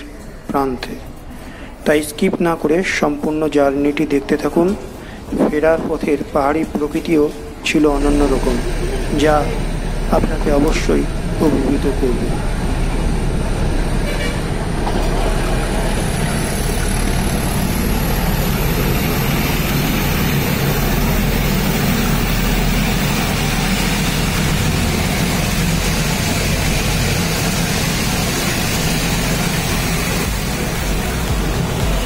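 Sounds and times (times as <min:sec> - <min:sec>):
train low rumble: 0:00.0 - 0:32.0.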